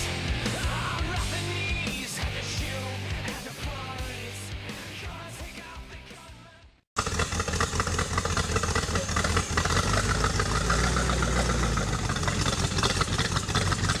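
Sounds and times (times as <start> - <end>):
engine deep rumble: 7.0 - 14.0.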